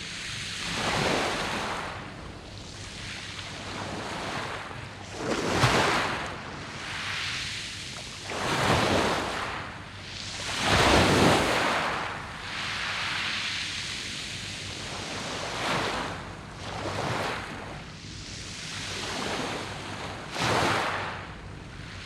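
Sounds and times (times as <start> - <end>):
waves washing onto pebble beach: 10.3 - 13.3.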